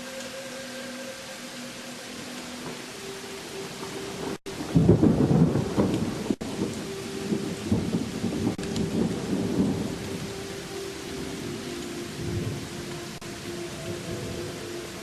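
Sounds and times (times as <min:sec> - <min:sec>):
steady rain: 0:00.0 - 0:15.0
thunder rumbling: 0:03.6 - 0:15.0.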